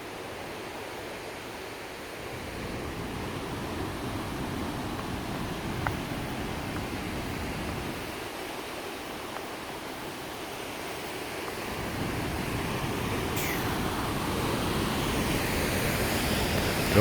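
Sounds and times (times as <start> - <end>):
waterfall rushing: 11.6 - 17.0.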